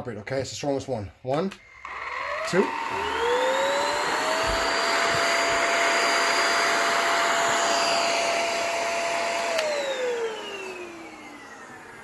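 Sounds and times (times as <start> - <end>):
stick vacuum motor whine: 1.6 - 12.0
vacuum switch click: 9.4 - 9.8.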